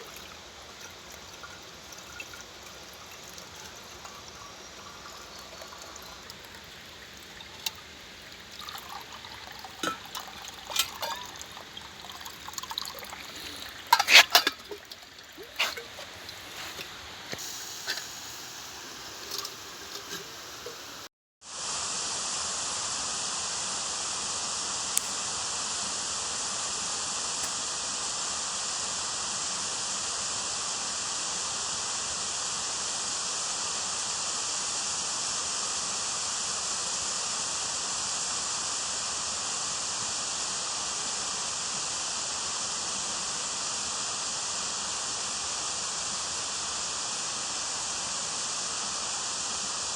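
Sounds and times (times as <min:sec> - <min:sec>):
stream water rushing: 0:00.0 - 0:21.1.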